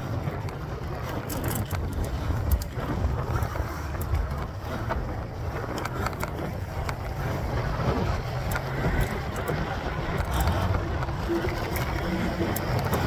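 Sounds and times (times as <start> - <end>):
bike tyre noise: 0.0 - 13.0
wind buffeting microphone: 0.0 - 13.0
small clicks and rattles: 0.1 - 13.0.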